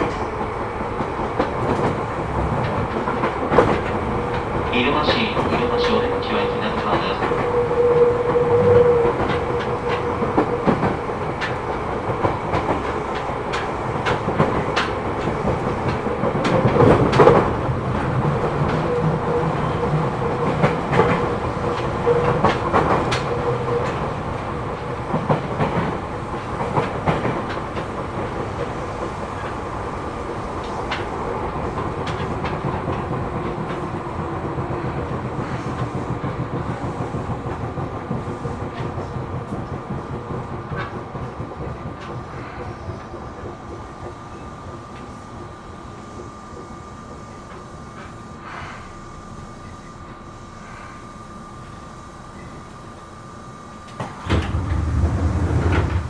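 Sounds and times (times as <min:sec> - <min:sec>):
train running rumble: 0:00.0 - 0:56.0
wheels clicking over rails: 0:53.9 - 0:56.0.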